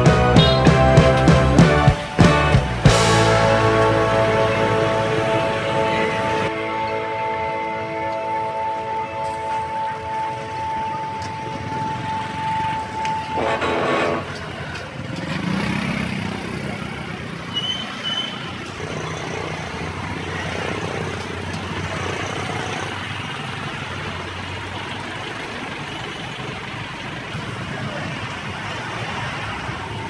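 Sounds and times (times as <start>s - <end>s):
street traffic passing: 0.0s - 30.0s.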